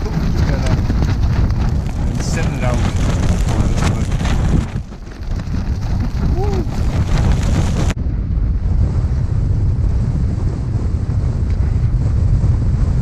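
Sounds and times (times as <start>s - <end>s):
storm wind buffeting microphone: 0.0s - 13.0s.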